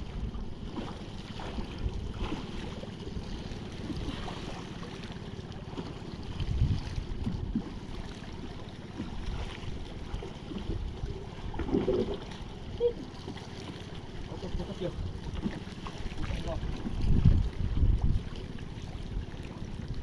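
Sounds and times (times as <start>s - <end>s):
wind rumbling on microphone: 0.0s - 4.6s, 6.2s - 8.0s, 14.4s - 20.0s
sea water lapping: 0.0s - 20.0s.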